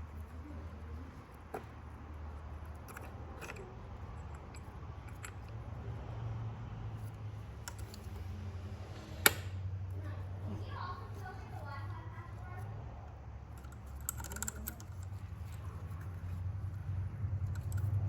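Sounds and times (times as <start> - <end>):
metallic clicks of hand tools: 7.6 - 8.2, 13.6 - 15.6.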